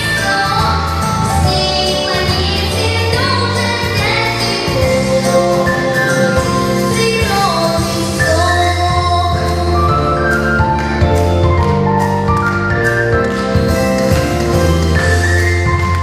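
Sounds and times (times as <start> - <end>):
person singing: 0.0 - 10.2
instrumental accompaniment: 0.0 - 16.0.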